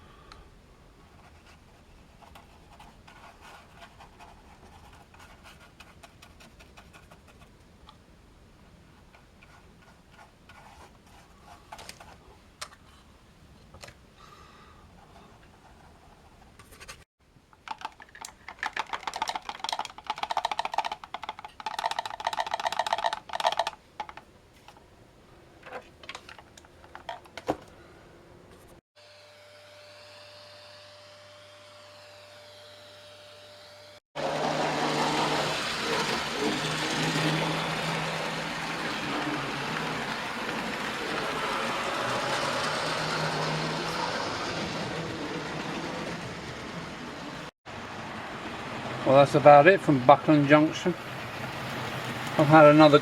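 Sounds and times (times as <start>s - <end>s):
irregular clicking and rattling: 17.5s - 24.9s, 25.6s - 27.8s
model train running on track: 34.2s - 47.5s.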